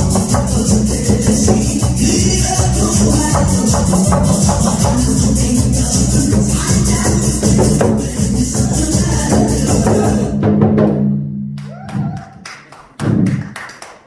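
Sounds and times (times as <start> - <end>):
backing music with steady beat: 0.0 - 10.3
drum beaten: 0.0 - 11.2.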